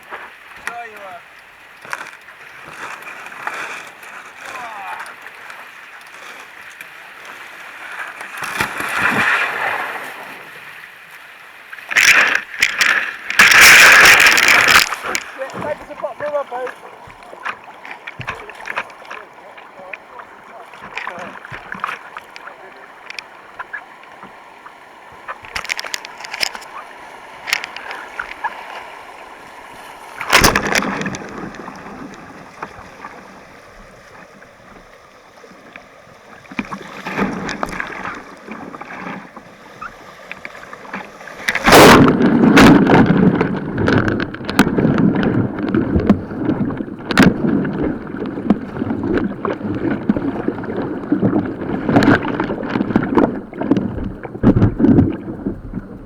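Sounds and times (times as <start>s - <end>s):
paddle splashes and knocks: 0.0s - 56.0s
water rushing around kayak: 0.0s - 56.0s.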